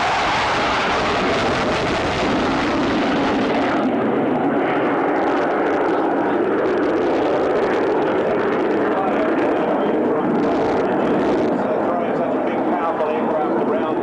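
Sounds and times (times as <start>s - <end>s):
jet flying past: 0.0s - 14.0s.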